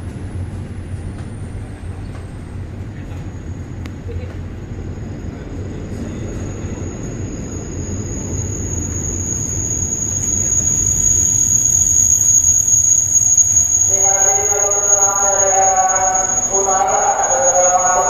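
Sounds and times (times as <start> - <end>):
train rumbling: 0.0 - 18.0
high-pitched squeal: 6.0 - 18.0
steady pitched tone: 7.6 - 18.0.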